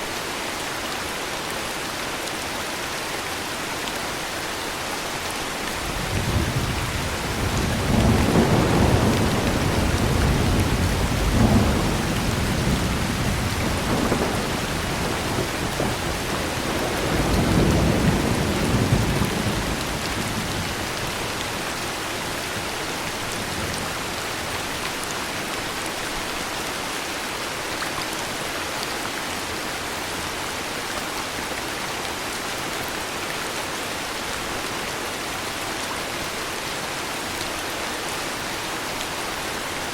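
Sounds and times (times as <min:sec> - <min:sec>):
heavy rainfall: 0:00.0 - 0:39.9
rolling thunder: 0:05.8 - 0:21.2.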